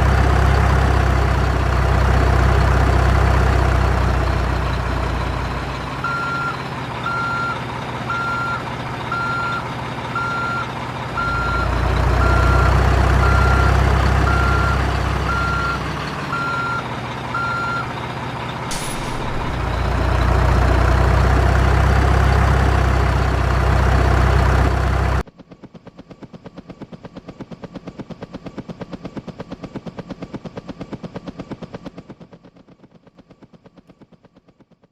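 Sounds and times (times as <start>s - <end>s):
truck engine running: 0.0s - 34.4s
reversing alarm beeping: 6.0s - 17.9s.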